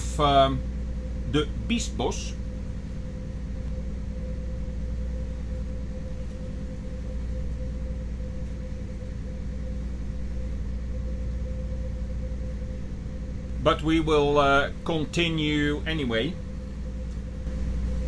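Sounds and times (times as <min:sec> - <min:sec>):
boat engine droning: 0:00.0 - 0:03.4, 0:12.3 - 0:18.0.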